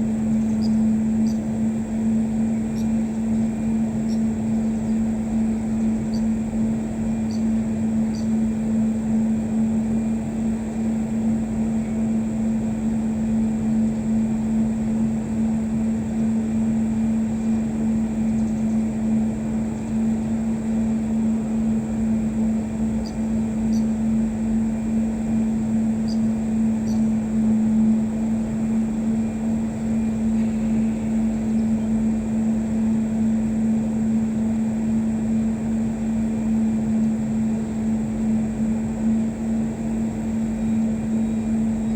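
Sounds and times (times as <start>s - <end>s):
steady motor drone: 0.0s - 41.9s.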